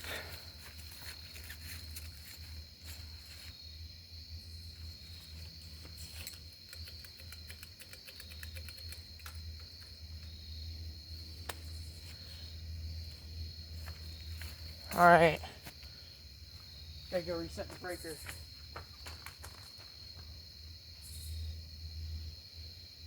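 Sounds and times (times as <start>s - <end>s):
high-pitched insect trill: 0.0s - 23.0s
faint clicks: 6.1s - 9.9s.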